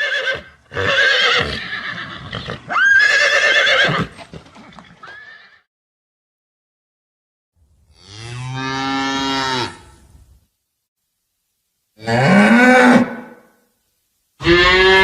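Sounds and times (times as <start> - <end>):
cow mooing: 14.4 - 15.0.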